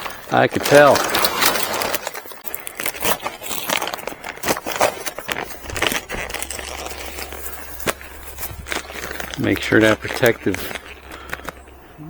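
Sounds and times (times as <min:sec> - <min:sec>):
plastic sheet crinkling and rustling: 0:00.0 - 0:12.0.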